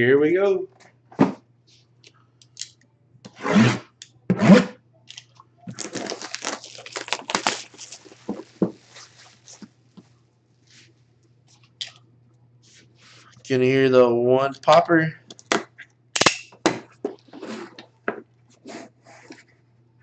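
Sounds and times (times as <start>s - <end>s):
packaging crackling and tearing: 5.7s - 9.6s
box packaging rustling: 5.7s - 9.7s.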